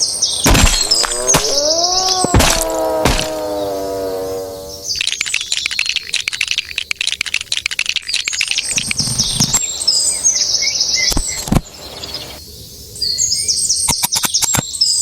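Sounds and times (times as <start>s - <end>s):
high bird trill: 0.0s - 6.5s
birds chirping: 0.0s - 6.8s, 7.5s - 12.4s.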